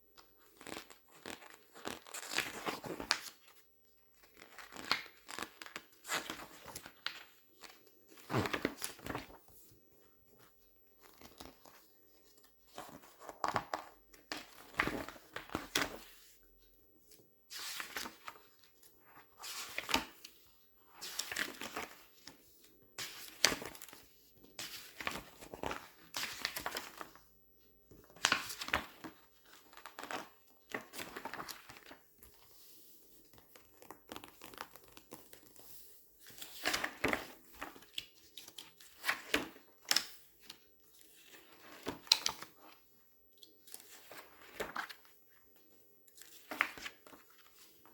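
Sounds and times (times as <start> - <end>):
glossy paper pages crinkling: 0.4 - 9.7, 17.5 - 22.4, 23.0 - 27.2, 28.0 - 42.8, 43.4 - 45.1, 46.1 - 47.9.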